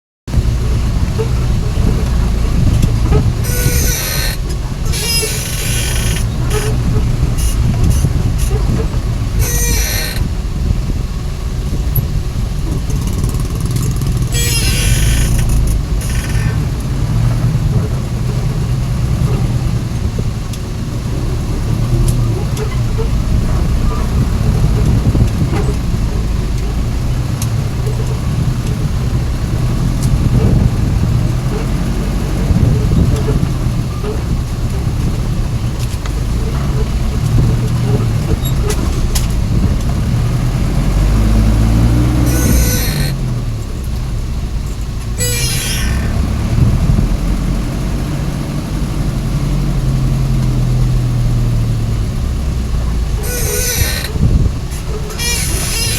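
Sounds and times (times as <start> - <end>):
truck engine running: 0.3 - 55.9
high hiss with squeal: 3.4 - 6.8, 9.4 - 10.3, 14.3 - 16.6, 42.1 - 43.2, 45.2 - 46.2, 53.2 - 55.9.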